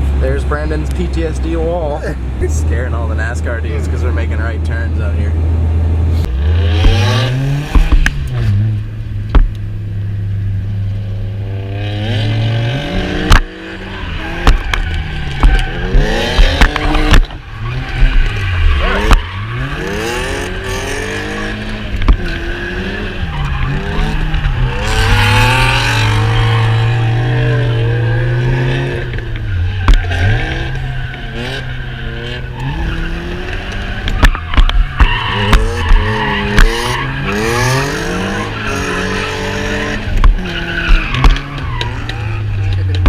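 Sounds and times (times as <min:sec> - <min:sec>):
car engines revving: 0:00.0 - 0:43.0
tyres squealing: 0:13.8 - 0:43.0.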